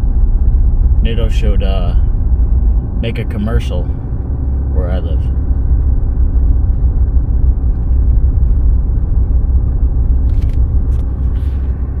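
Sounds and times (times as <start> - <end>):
truck driving through snow: 5.6 - 12.0.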